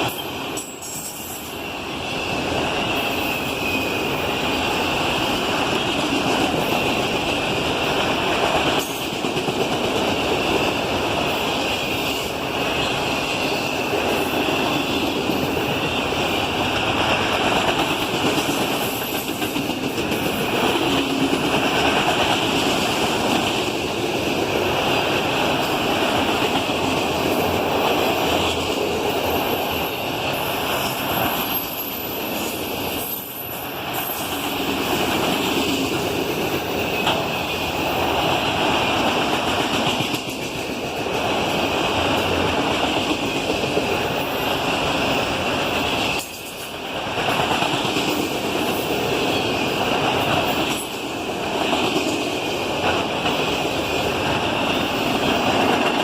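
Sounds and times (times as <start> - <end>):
freight train rolling by: 0.0 - 56.0.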